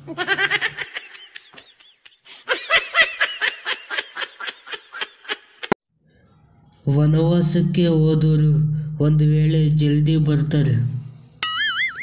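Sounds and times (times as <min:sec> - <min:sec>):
person laughing in bursts: 0:00.0 - 0:05.8.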